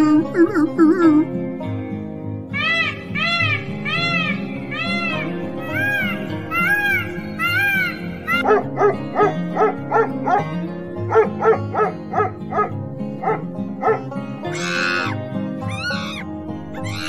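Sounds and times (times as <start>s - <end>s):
background music: 0.0s - 17.0s
peafowl crying: 2.6s - 9.4s, 11.1s - 17.0s
dogs barking: 3.2s - 17.0s.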